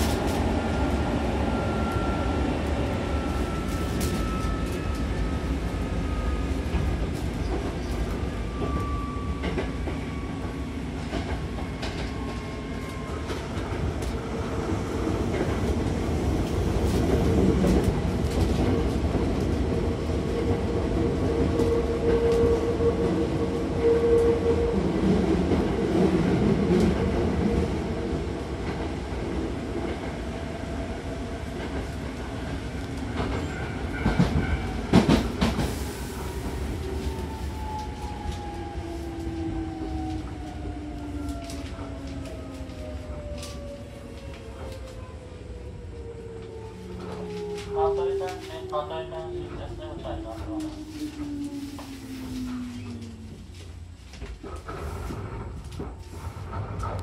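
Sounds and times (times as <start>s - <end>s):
train wheels rumbling on track: 0.0s - 57.0s
train wheels clacking: 33.0s - 35.8s.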